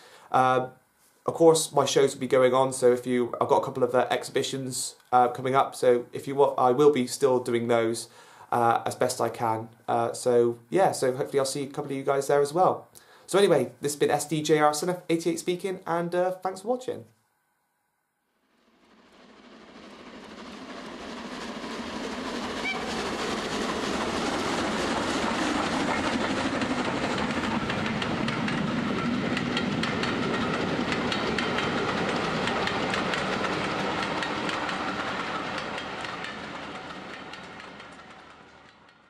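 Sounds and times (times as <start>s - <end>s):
train wheels clicking over joints: 21.1s - 39.0s.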